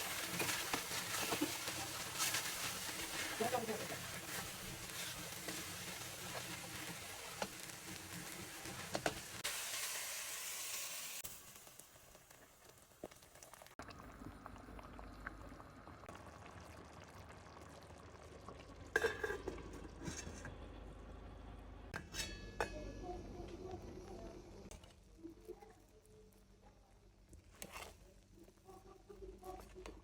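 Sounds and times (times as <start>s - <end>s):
food sizzling in a pan: 0.0s - 13.8s.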